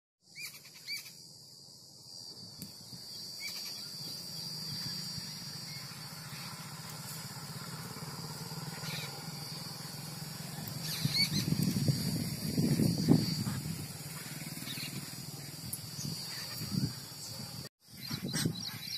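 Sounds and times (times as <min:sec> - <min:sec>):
steady high-pitched whine: 0:00.3 - 0:18.9
low steady rumble: 0:04.2 - 0:17.6.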